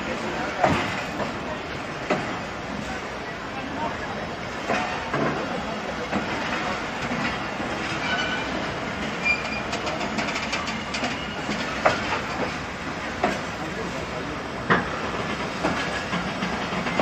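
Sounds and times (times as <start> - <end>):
wheels rumbling on track: 0.0 - 17.0
clacks over rail joints: 0.2 - 3.0, 4.5 - 17.0
high wheel squeals: 7.9 - 9.9.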